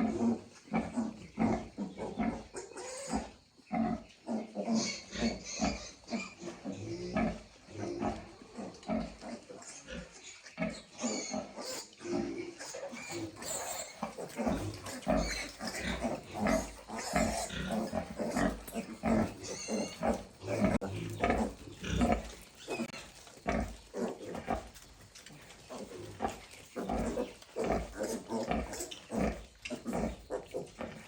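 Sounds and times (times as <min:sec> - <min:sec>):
piglets grunting: 0:00.0 - 0:31.0
piglet squeal: 0:11.0 - 0:12.0, 0:12.6 - 0:18.6, 0:19.2 - 0:21.6.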